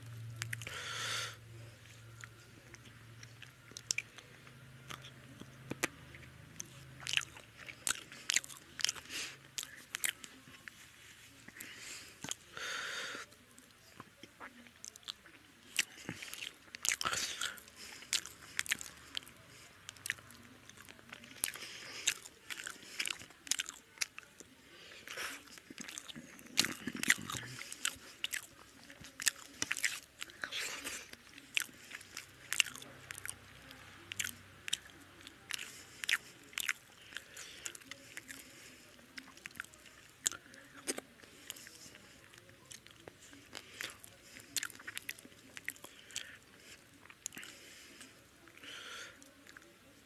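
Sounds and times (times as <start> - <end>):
wet chewing mouth clicks: 25.0 - 33.4.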